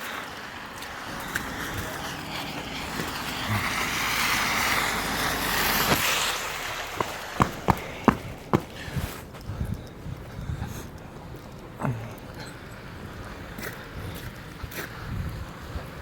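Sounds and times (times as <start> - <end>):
vehicle passing on street: 0.0 - 10.3
sharp footsteps: 0.6 - 12.2.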